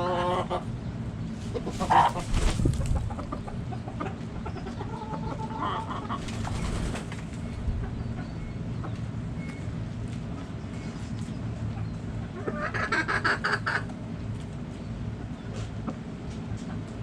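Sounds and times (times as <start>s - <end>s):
chicken calls: 0.0s - 9.0s, 11.7s - 13.9s
chickens clucking: 0.0s - 9.3s, 10.1s - 17.0s
steady low hum: 0.0s - 17.0s.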